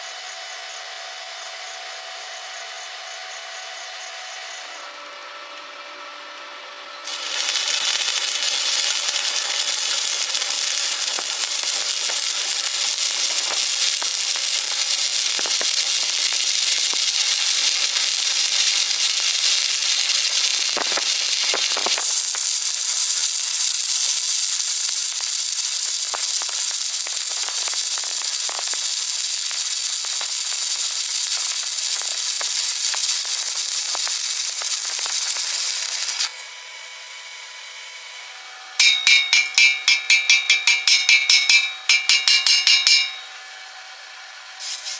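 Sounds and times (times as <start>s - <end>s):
welding arc crackling and hissing: 7.0s - 36.5s, 38.8s - 43.3s, 44.6s - 44.9s.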